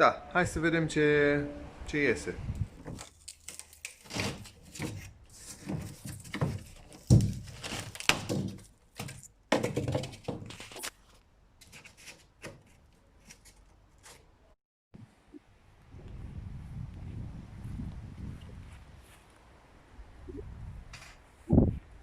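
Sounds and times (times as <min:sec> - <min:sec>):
knocks and thuds of objects: 0:04.1 - 0:10.9.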